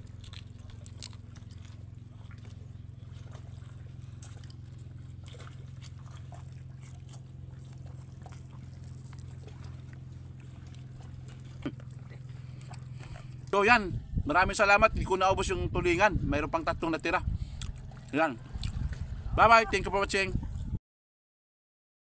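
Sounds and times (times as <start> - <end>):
chewing and lip smacking: 0.0 - 13.6, 17.2 - 19.2
faint wet clicks: 0.0 - 13.6, 17.4 - 19.1
low hum: 0.0 - 20.8.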